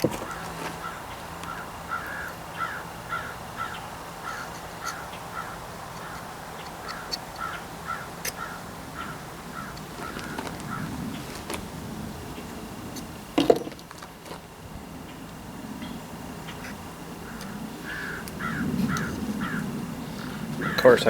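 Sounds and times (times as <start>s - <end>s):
bird calling: 0.0s - 11.5s, 15.8s - 21.0s.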